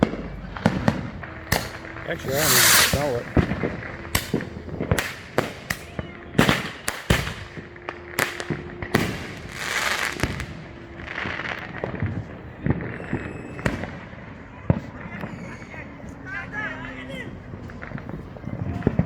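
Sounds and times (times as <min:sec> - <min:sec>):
fireworks bangs and pops: 0:00.0 - 0:15.5
fireworks hissing: 0:00.6 - 0:05.9, 0:09.1 - 0:10.5.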